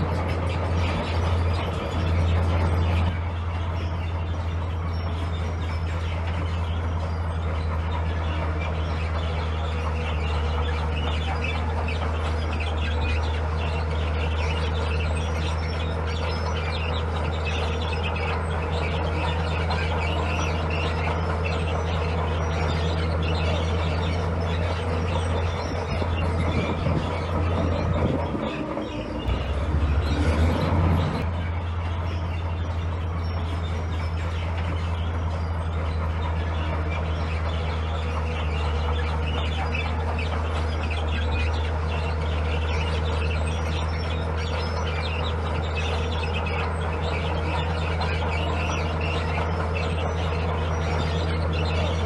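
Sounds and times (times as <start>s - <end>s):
heavy diesel machine droning: 0.0s - 52.0s.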